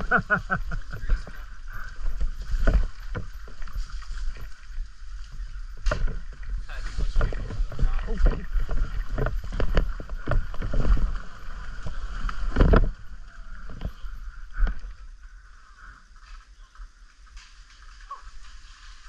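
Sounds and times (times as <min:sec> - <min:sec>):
wind buffeting microphone: 0:00.0 - 0:15.1
bike knocks and clatter: 0:05.7 - 0:10.9.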